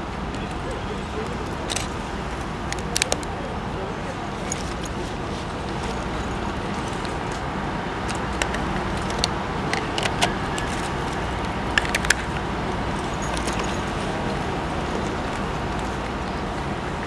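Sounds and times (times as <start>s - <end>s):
harbour noise: 0.0s - 17.0s
ship engines humming: 2.0s - 17.0s
sharp metallic clicks: 4.5s - 17.0s.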